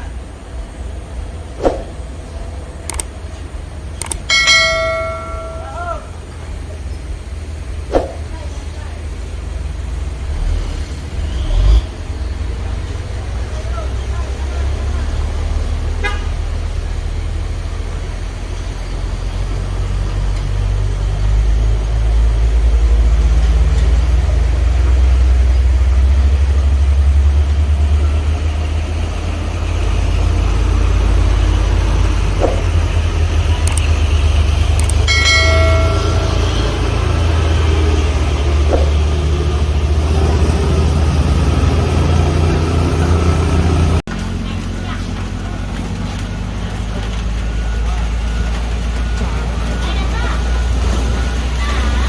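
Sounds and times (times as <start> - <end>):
truck engines droning: 0.0 - 52.0
vehicle horn: 15.9 - 16.6.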